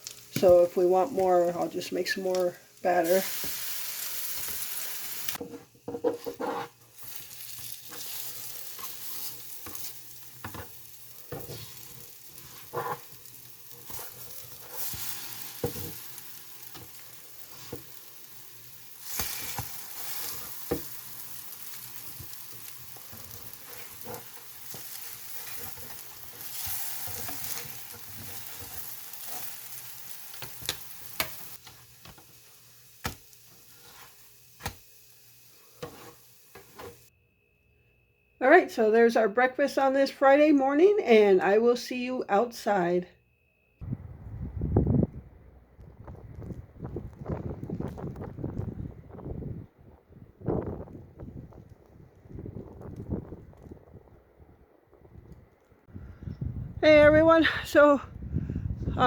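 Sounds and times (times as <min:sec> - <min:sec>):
bread sizzling in butter: 0:00.0 - 0:37.1.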